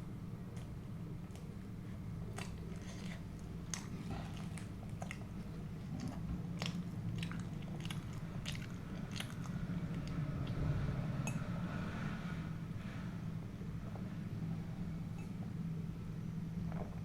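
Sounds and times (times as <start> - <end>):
chewing crusty food: 0.5 - 11.0.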